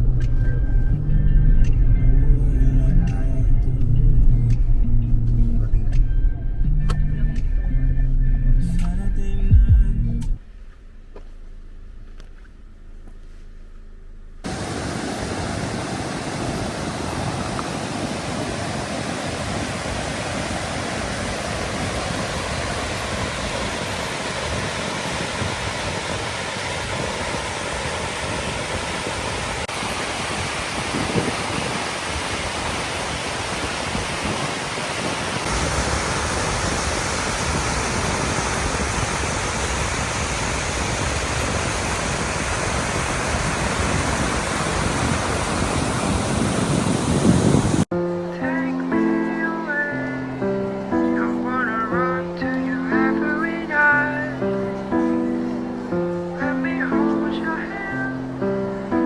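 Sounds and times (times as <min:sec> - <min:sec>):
rushing water roar: 0:14.4 - 0:59.0.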